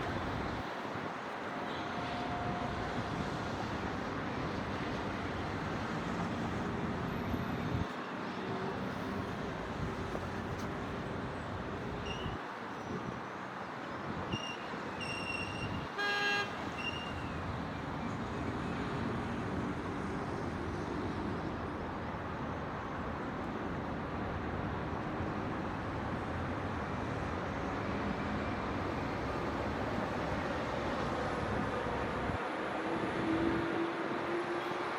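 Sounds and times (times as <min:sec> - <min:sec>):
city traffic: 0:00.0 - 0:34.9
vehicle horn honk: 0:16.0 - 0:17.1.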